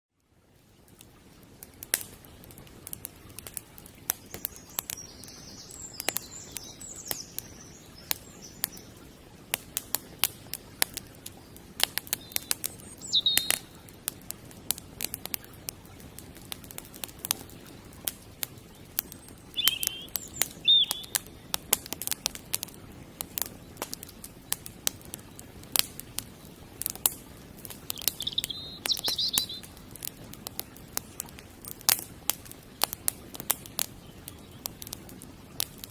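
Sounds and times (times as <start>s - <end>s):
campfire crackling and popping: 0.2s - 35.9s
low steady hiss: 0.2s - 35.9s
small birds chirping: 3.4s - 9.2s, 9.9s - 14.1s, 17.2s - 21.9s, 23.4s - 31.2s, 33.4s - 35.2s.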